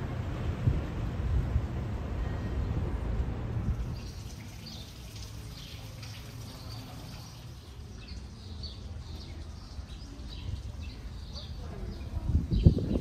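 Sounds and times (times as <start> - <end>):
small birds chirping: 4.0 - 13.0.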